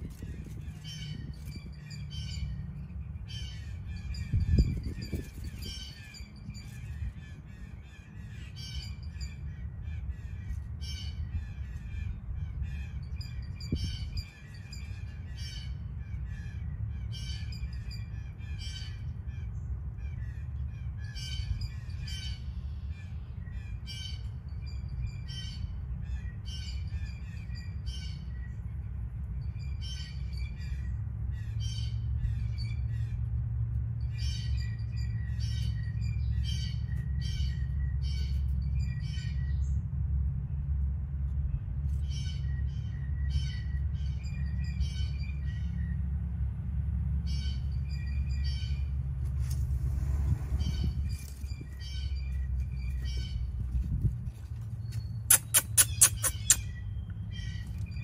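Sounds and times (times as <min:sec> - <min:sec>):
birds calling: 0:00.0 - 0:33.3, 0:47.2 - 0:58.0
steady low rumble: 0:00.0 - 0:58.0.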